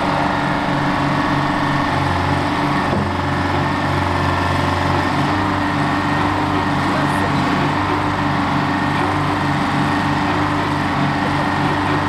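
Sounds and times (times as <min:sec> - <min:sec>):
excavator engine running: 0:00.0 - 0:12.0.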